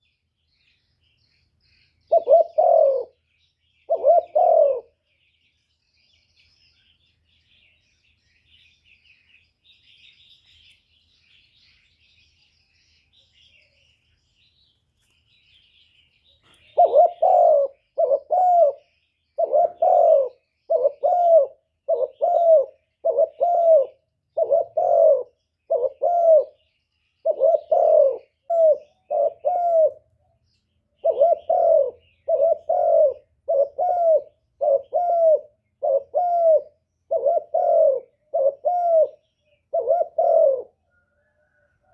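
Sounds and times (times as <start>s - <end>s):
small birds chirping: 0.0s - 41.9s
dove cooing: 2.0s - 5.1s, 16.4s - 30.1s, 31.0s - 41.9s.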